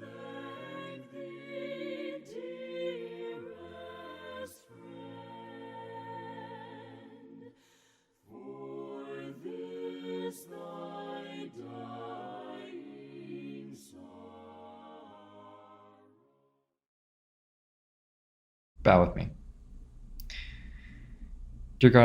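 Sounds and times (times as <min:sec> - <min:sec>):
a cappella choir singing a hymn: 0:00.0 - 0:16.3.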